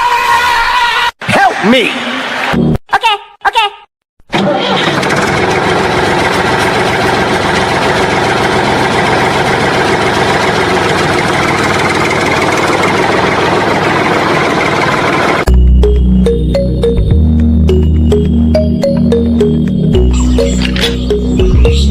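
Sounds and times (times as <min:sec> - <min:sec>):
engine running steadily: 0:04.8 - 0:17.0.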